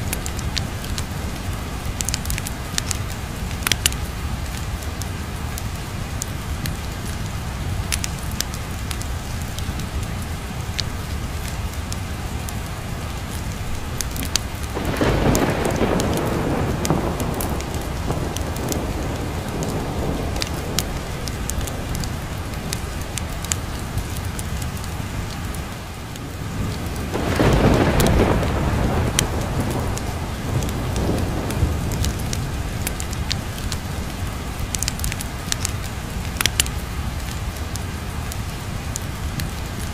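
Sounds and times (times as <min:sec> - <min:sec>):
steady rain: 0:00.0 - 0:39.9
thunder rolling: 0:14.1 - 0:23.6, 0:26.5 - 0:34.1.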